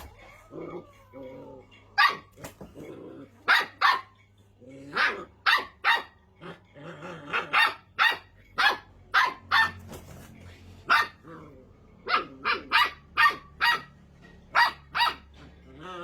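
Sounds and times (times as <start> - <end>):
puppy growling: 0.0 - 3.6, 4.6 - 5.6, 6.3 - 7.9, 11.0 - 13.0, 15.3 - 16.0
puppy barking: 1.6 - 2.6, 3.4 - 4.2, 4.9 - 6.2, 7.3 - 10.0, 10.8 - 15.7.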